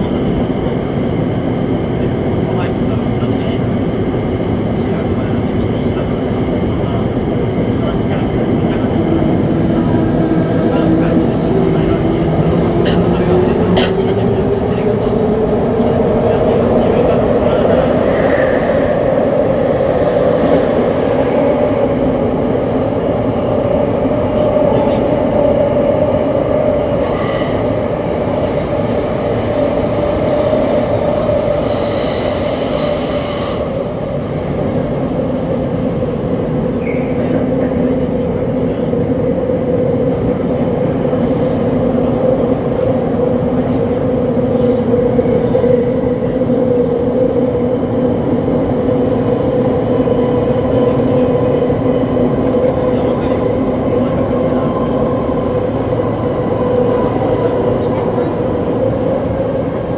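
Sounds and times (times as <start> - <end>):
wheels rumbling on rail: 0.0 - 59.9
high squeal: 27.2 - 35.0.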